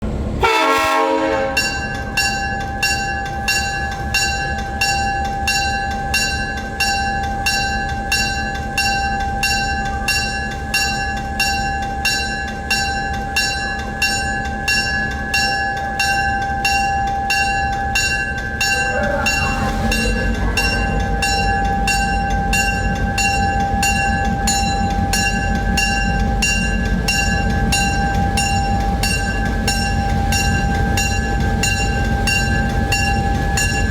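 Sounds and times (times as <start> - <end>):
locomotive bell ringing: 0.8 - 33.9
diesel engine rumble: 17.8 - 33.9.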